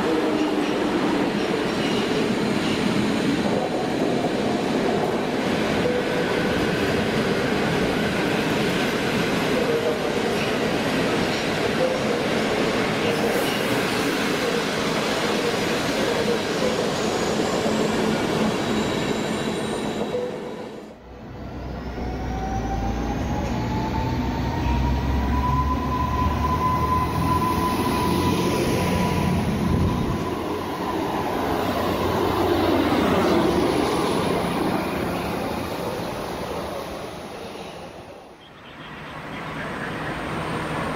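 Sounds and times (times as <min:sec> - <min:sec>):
train rail noise: 0:00.0 - 0:40.9.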